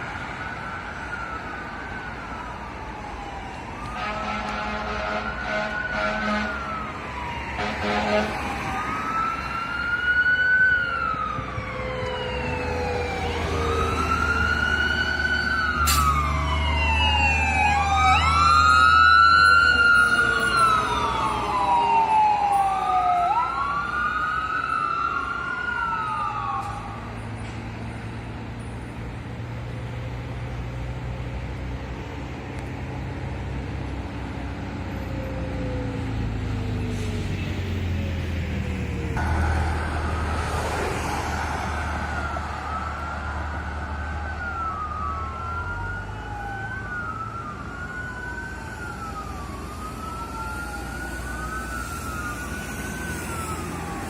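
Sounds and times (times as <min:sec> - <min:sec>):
truck engine rumble: 0:00.0 - 0:54.0
siren wailing: 0:00.1 - 0:27.4, 0:38.6 - 0:54.0
second siren wailing: 0:00.1 - 0:27.5, 0:38.6 - 0:54.0.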